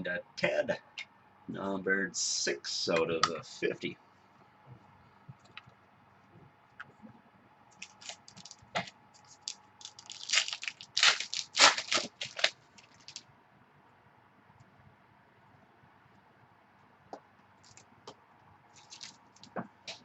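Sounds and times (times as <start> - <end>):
card packaging crackling: 7.8 - 13.2, 18.8 - 20.0.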